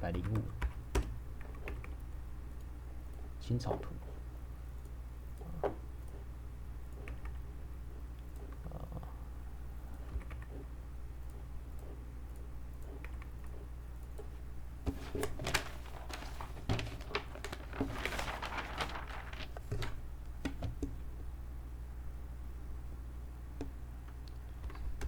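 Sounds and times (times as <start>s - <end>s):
keyboard typing: 0.0s - 2.0s, 6.9s - 7.6s, 10.0s - 14.4s
steady low hum: 0.0s - 25.0s.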